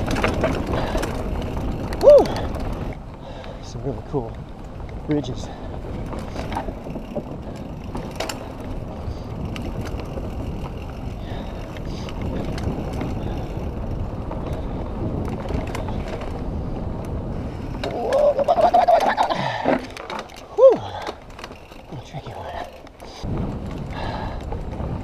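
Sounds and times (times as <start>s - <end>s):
wind on microphone: 0.0s - 3.5s, 4.3s - 19.7s, 21.9s - 25.0s
bike clicks and rattles: 0.0s - 25.0s
bike tyres rumbling on dirt: 0.0s - 25.0s
rider vocal sound: 17.8s - 19.9s, 21.8s - 22.8s.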